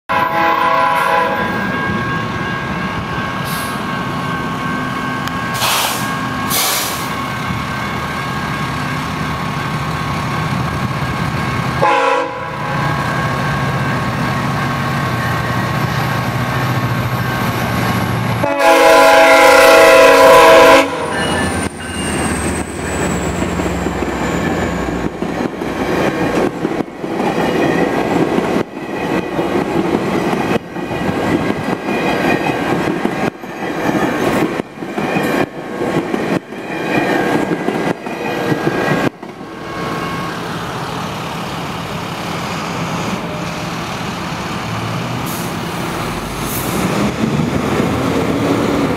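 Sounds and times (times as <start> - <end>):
train air horn: 0.1 - 2.0, 5.5 - 7.1, 11.8 - 13.4, 18.4 - 21.5
low train rumble: 0.1 - 48.9.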